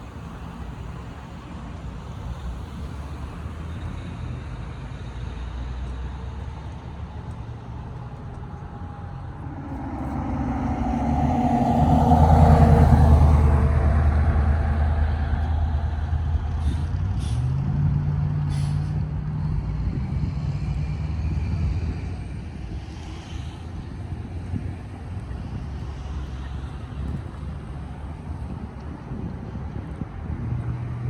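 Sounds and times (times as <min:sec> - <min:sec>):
heavy truck engine running: 0:00.0 - 0:20.0.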